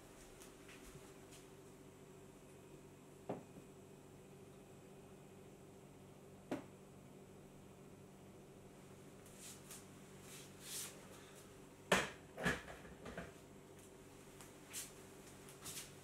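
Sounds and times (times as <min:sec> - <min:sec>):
faint steady hum: 0:00.0 - 0:16.0
kitchen items knocking and clicking: 0:11.9 - 0:13.4.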